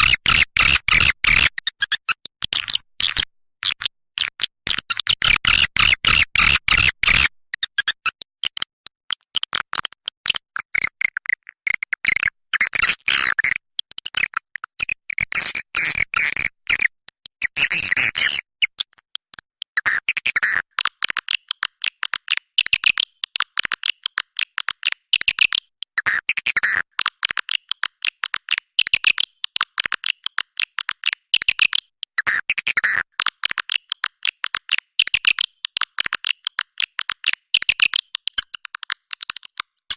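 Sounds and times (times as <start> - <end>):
recorded swiftlet chirping: 5.1 - 7.9, 33.2 - 39.9.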